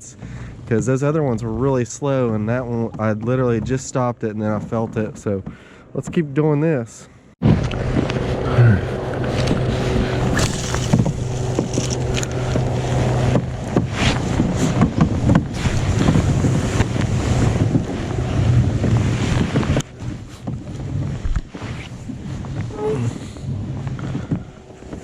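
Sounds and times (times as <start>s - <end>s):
water against kayak: 7.4s - 25.0s
wind buffeting microphone: 7.4s - 25.0s.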